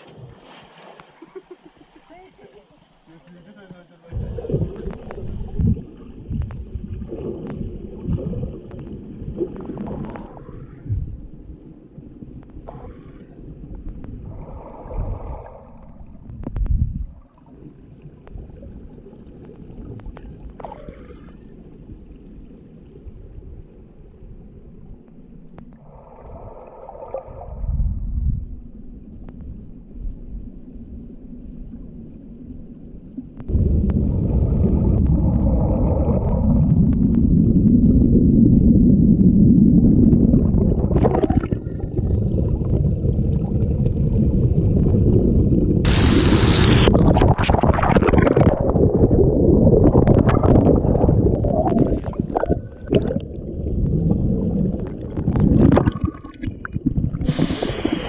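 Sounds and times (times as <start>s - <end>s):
waterfall rumble: 33.5s - 58.0s.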